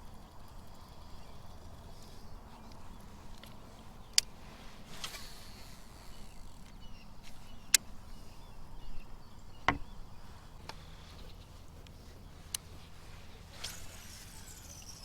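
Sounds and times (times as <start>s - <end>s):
faint outdoor background: 0.0s - 15.0s
dull thump: 9.7s - 9.9s
sharp clicks or knocks: 9.7s - 9.9s.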